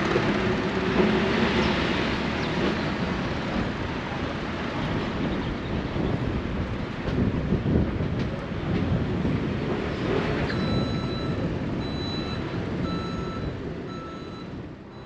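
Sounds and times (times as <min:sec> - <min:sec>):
train rumbling: 0:00.0 - 0:15.0
high beeping tone: 0:10.5 - 0:15.0.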